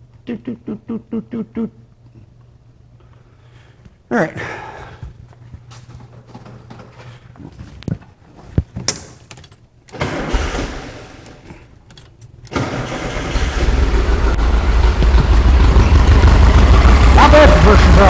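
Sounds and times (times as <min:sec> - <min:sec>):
car engine cranking and starting: 0:09.4 - 0:18.0.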